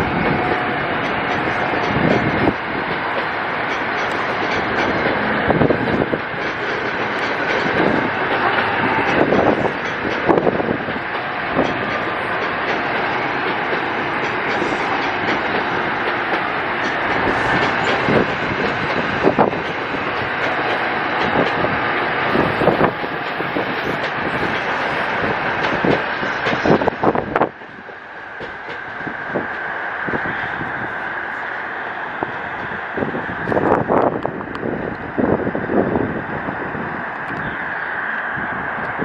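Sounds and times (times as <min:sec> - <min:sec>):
wheel clacks over rail joints: 0:00.0 - 0:29.6
train passing: 0:00.0 - 0:39.0.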